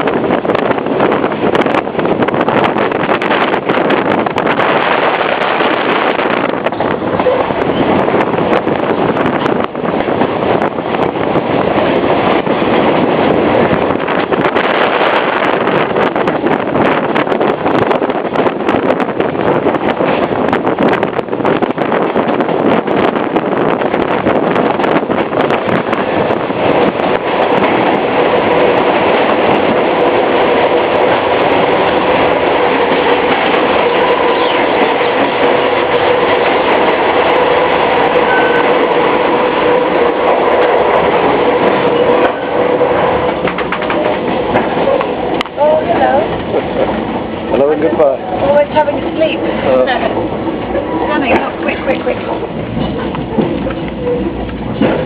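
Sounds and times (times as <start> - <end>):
passenger train running: 0.0 - 55.0
wind rushing over microphone: 0.0 - 55.0.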